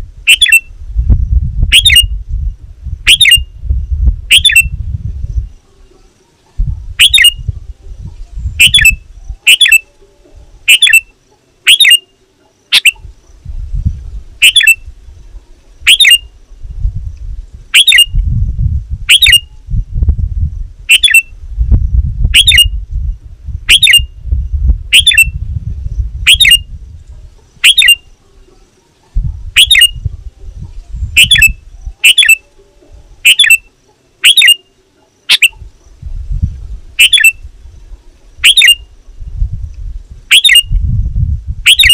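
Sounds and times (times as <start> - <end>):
bird calling sharply: 4.3 - 4.7, 7.0 - 7.4, 8.6 - 9.9, 10.6 - 13.1, 14.4 - 14.8, 15.8 - 16.3, 17.7 - 18.2, 22.4 - 22.8, 24.9 - 25.3, 27.6 - 28.1, 29.6 - 30.0, 31.2 - 32.5, 33.2 - 35.7, 38.4 - 38.9.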